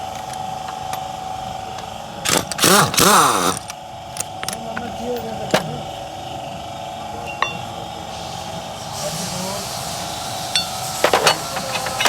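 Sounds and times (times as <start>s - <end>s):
steady background hum: 0.0s - 12.0s
metal tools clinking on engine parts: 1.7s - 6.0s, 7.2s - 8.0s, 10.5s - 12.0s.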